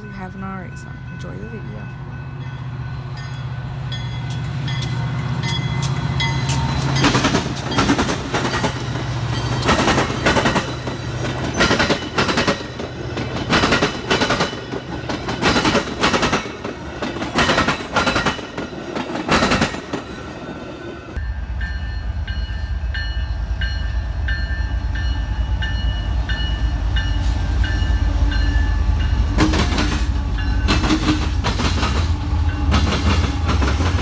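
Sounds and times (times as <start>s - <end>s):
train wheels clacking on rail joints: 4.2s - 20.2s, 29.2s - 34.0s
locomotive engine hum: 20.2s - 34.0s.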